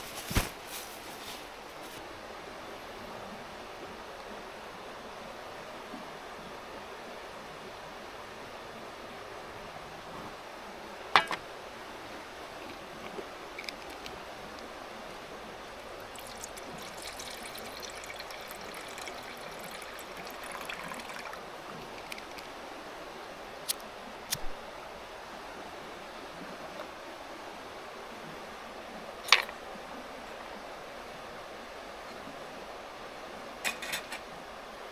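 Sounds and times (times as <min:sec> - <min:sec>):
mountain stream rushing: 0:03.6 - 0:29.7.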